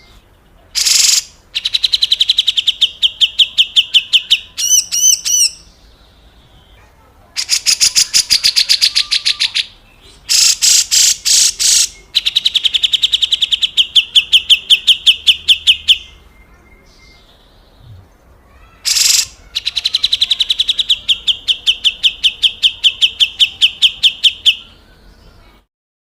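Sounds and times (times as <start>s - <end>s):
bird harsh rattling call: 0.8s - 1.3s, 10.3s - 12.0s, 18.6s - 20.6s.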